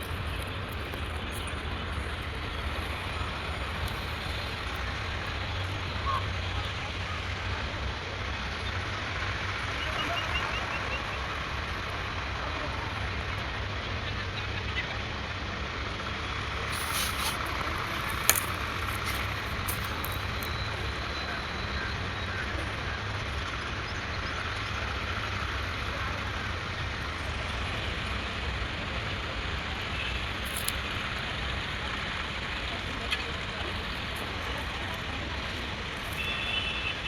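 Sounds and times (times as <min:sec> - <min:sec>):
tractor diesel engine running: 0:00.0 - 0:09.8, 0:11.2 - 0:37.0
brief clicks and hisses: 0:16.7 - 0:20.5, 0:30.5 - 0:30.8.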